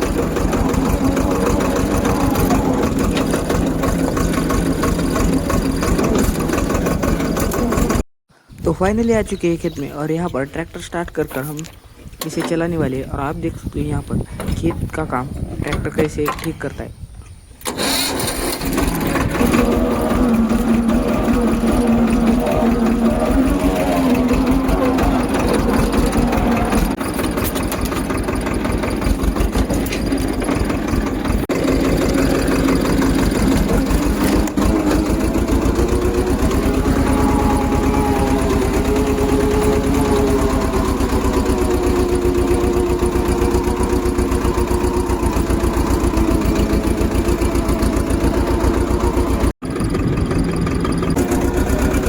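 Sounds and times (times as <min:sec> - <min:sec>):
tractor diesel engine: 0:00.0 - 0:17.0, 0:17.6 - 0:52.0.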